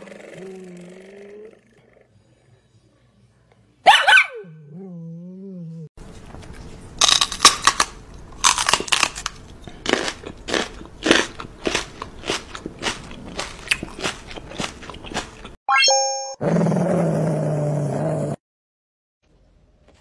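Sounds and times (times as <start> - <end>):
loud crunchy chewing: 7.0 - 15.6.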